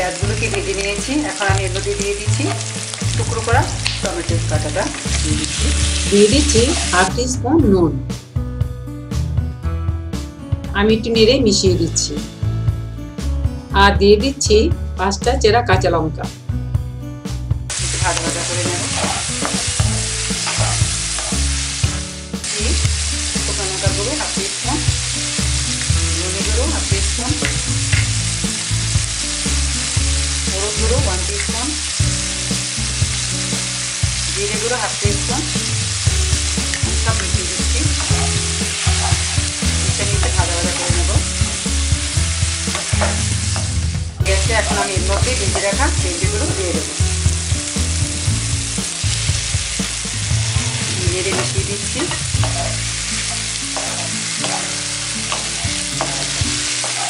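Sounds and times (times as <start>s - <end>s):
vegetables sizzling in hot oil: 0.0s - 7.4s, 17.7s - 57.0s
wooden spatula scraping: 18.1s - 22.0s, 36.8s - 41.6s, 50.7s - 57.0s.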